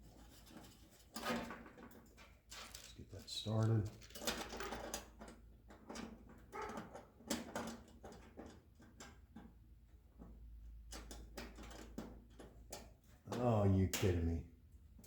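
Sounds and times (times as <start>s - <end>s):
metal hardware clicks and scrapes: 0.1s - 9.1s.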